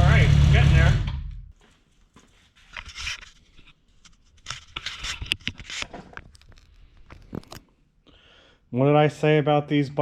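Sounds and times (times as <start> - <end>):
scraping and light clicking: 1.6 - 7.7.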